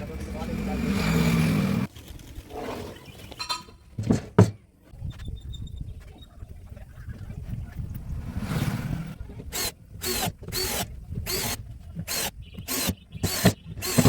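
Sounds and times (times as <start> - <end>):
hand tool rasping wood: 9.5 - 14.0.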